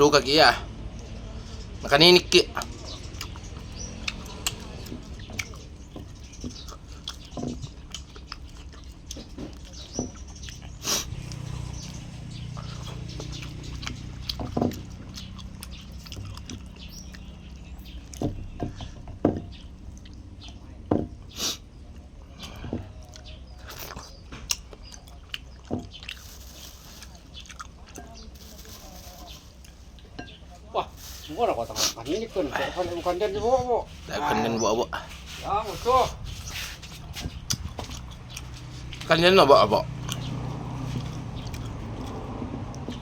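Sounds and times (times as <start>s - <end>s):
person chewing: 3.0s - 30.2s, 36.2s - 39.1s, 39.9s - 43.0s.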